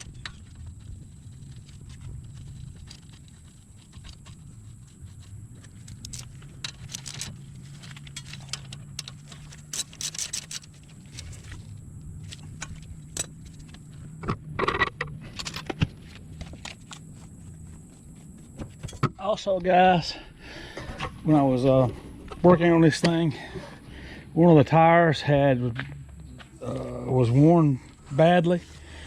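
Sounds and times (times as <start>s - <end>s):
metallic rattle: 0.0s - 11.7s
steady low hum: 0.0s - 29.0s
metal tools clinking and scraping: 5.1s - 11.6s, 12.2s - 13.8s, 14.6s - 15.8s.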